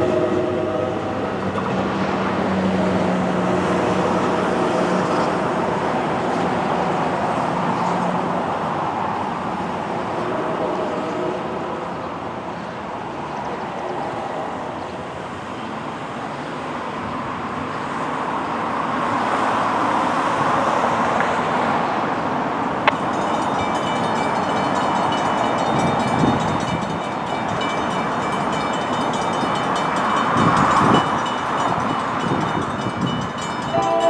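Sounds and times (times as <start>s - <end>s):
train rail noise: 0.0s - 34.0s
high-pitched ringing tones: 22.9s - 34.0s.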